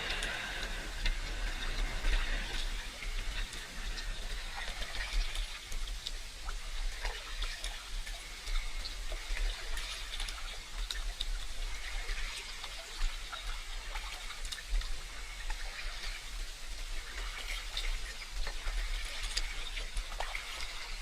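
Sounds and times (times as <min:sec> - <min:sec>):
steady low rumble: 0:00.0 - 0:12.1
small water drips: 0:00.0 - 0:21.0
water splashing and trickling: 0:00.0 - 0:21.0.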